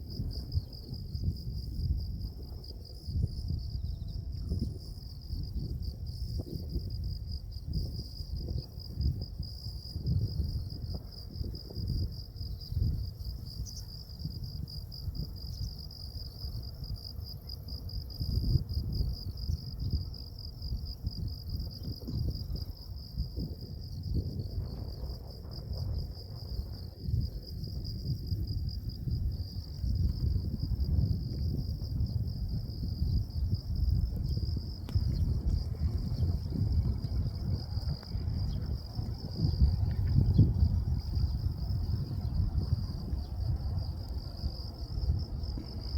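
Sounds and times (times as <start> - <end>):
wind rumbling on microphone: 0.0 - 45.9
insects trilling: 7.7 - 45.9.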